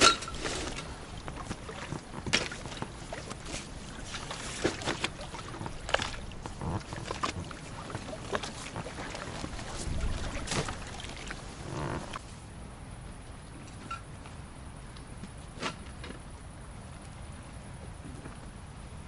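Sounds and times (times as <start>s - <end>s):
gear knocking and rattling in boat: 0.0s - 12.2s
low steady rumble: 0.0s - 19.0s.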